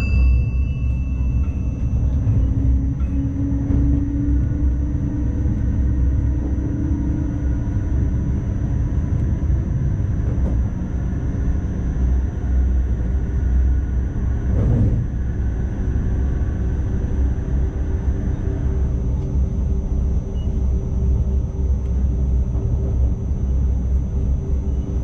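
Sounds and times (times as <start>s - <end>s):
humming tone: 0.0s - 20.8s
constant high whine: 0.0s - 25.0s
train low rumble: 0.0s - 25.0s.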